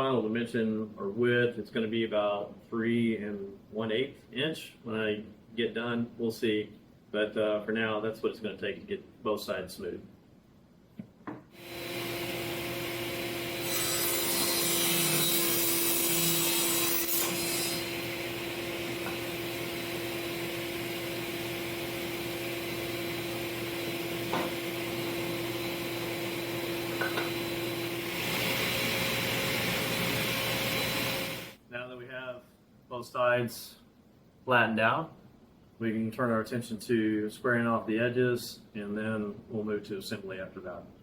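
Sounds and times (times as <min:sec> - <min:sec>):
table saw cutting wood: 0:11.6 - 0:31.6.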